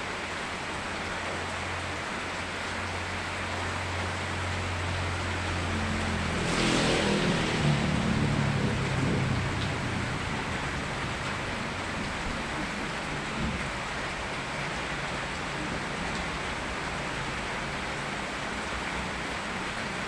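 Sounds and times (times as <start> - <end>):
steady rain falling: 0.0 - 20.0
low engine-like rumble: 7.1 - 14.4.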